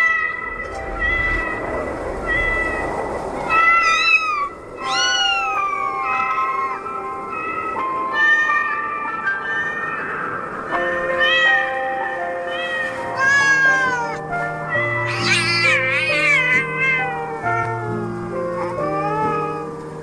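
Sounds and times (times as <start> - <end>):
cat meowing: 0.0 - 1.6, 2.2 - 2.8, 3.4 - 6.8, 11.0 - 11.8, 12.4 - 19.7
slow background music: 0.0 - 20.0.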